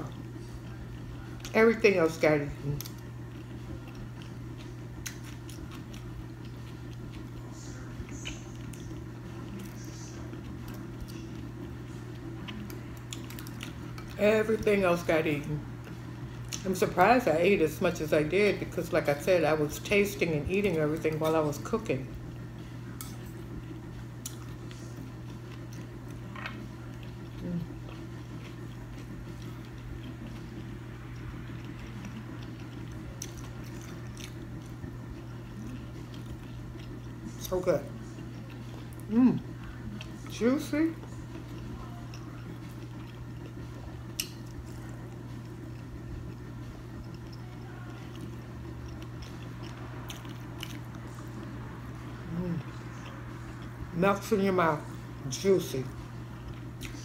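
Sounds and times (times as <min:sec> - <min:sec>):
low hum: 0:00.0 - 0:57.0
person chewing: 0:02.7 - 0:14.2, 0:23.0 - 0:37.4, 0:41.0 - 0:53.8, 0:56.4 - 0:57.0.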